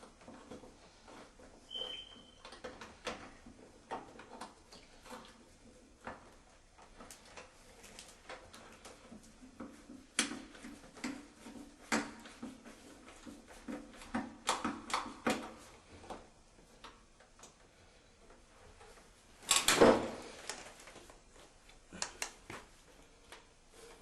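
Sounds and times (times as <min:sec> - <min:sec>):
short high squeak: 0:01.7 - 0:02.4.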